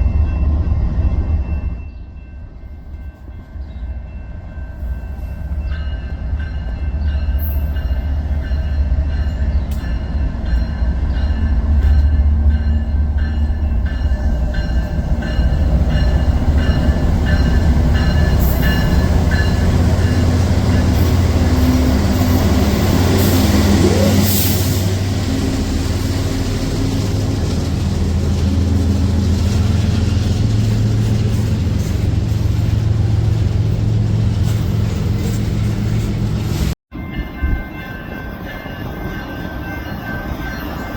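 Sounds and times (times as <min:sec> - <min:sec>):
train rumbling past: 0:00.0 - 0:40.9.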